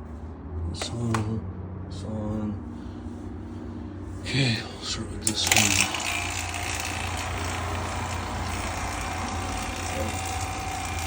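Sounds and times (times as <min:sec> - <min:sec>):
vacuum pump running: 0:04.7 - 0:11.0.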